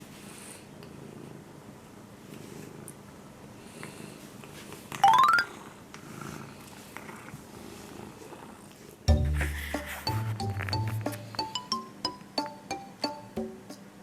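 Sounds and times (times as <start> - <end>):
kitten purring: 0.5 - 11.4.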